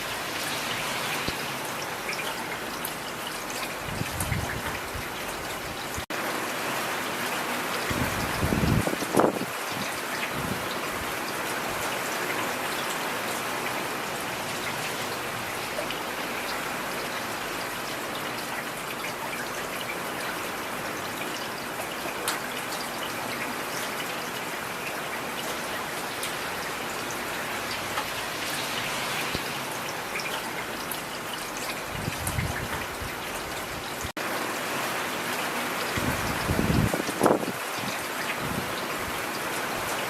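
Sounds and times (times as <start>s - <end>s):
heavy rain hissing: 0.0s - 2.0s, 25.6s - 31.1s.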